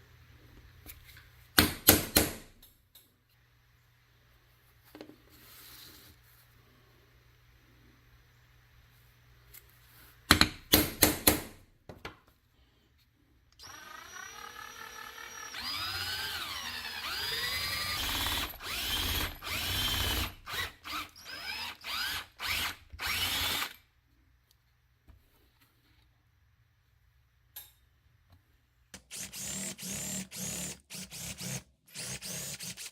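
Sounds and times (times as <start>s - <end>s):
electric drill running in bursts: 13.6s - 23.8s, 29.1s - 32.9s.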